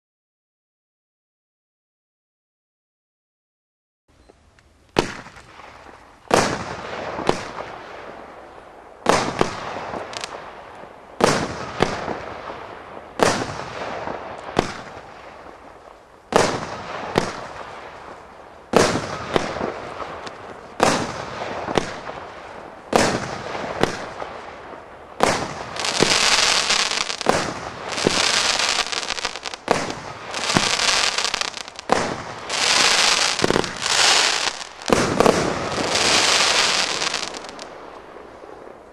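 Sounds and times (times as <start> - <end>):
dense firework crackling: 4.9 - 38.9
firework bangs: 5.0 - 38.9
hiss of rising firework: 25.4 - 37.7.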